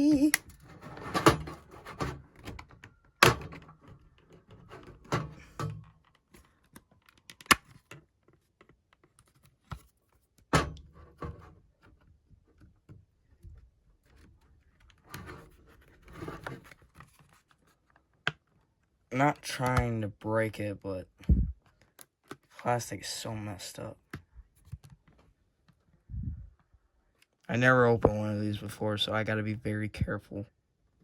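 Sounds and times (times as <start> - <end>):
plastic scraping and rustling: 0.4 - 10.2, 14.0 - 18.7.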